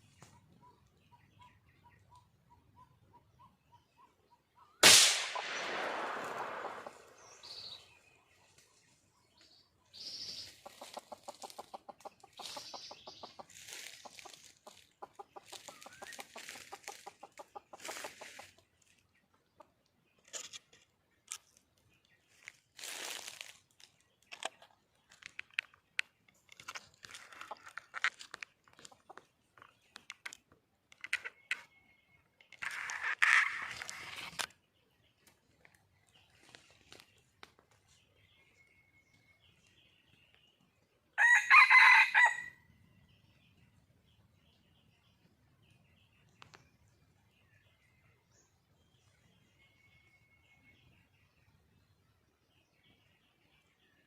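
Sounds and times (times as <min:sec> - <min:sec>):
loud sudden burst: 0:04.8 - 0:06.9
hen clucking: 0:10.3 - 0:18.7.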